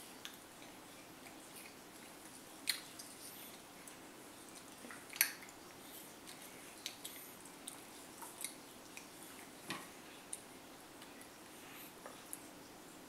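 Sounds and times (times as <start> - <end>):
toddler chewing an apple: 0.0 - 12.5.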